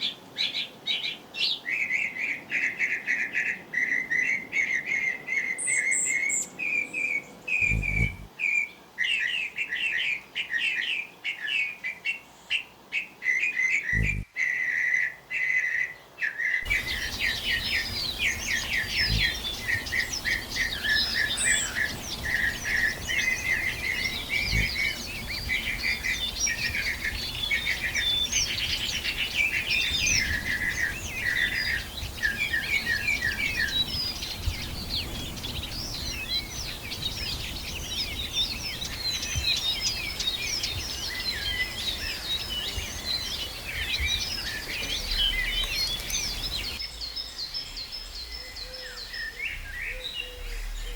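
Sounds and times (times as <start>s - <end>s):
lower repeated bird notes: 2.0s - 8.7s, 13.4s - 15.0s, 16.6s - 50.9s
high bird chirps and whistles: 7.6s - 8.3s, 13.9s - 14.8s, 16.6s - 47.1s.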